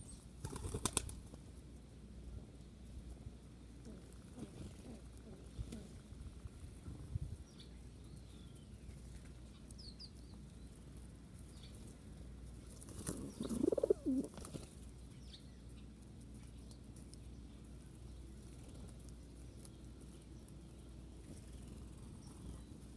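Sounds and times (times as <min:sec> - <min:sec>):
wing flapping: 0:00.4 - 0:01.4, 0:12.7 - 0:14.8
faint high bird chirps: 0:07.4 - 0:10.7, 0:13.2 - 0:14.3.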